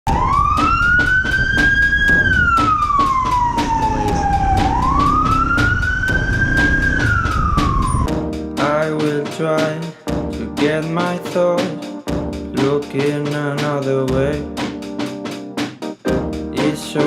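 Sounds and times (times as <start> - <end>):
wailing siren: 0.1 - 8.1
steady drum beat: 0.1 - 17.0.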